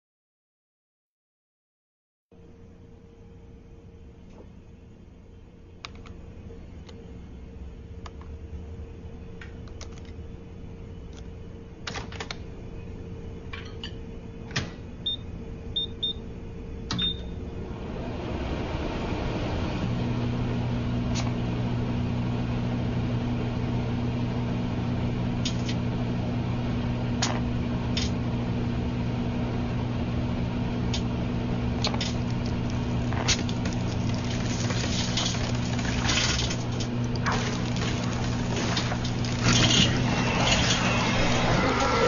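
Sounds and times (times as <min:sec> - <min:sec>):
microwave oven humming: 0:02.3 - 0:42.0
sharp snapping crackles of sparks: 0:31.8 - 0:39.7.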